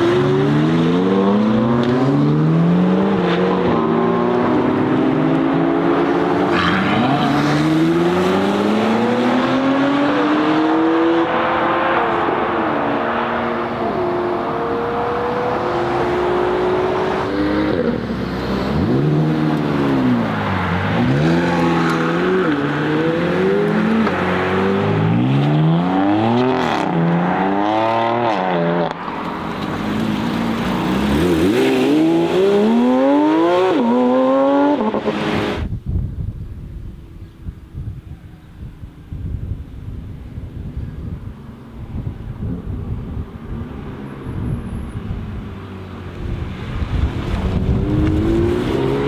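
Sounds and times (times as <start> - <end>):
car engine accelerating hard: 46.2 - 49.0.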